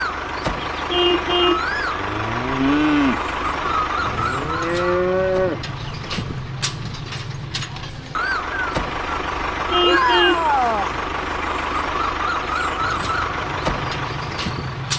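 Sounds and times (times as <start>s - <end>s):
low engine-like hum: 0.0s - 14.9s
cow mooing: 2.0s - 3.2s, 4.2s - 5.6s.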